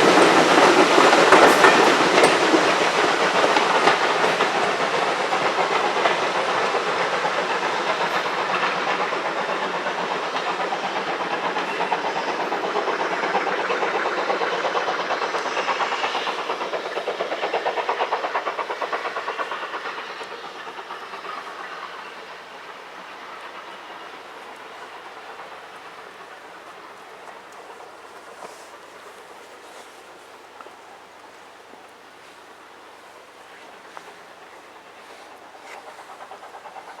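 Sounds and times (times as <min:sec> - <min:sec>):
train wheels clattering over rail joints: 0:00.0 - 0:37.0.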